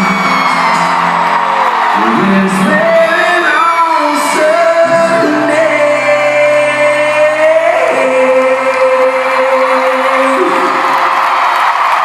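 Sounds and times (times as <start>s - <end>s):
crowd shouting: 0.0s - 5.0s
amplified band playing: 0.0s - 11.5s.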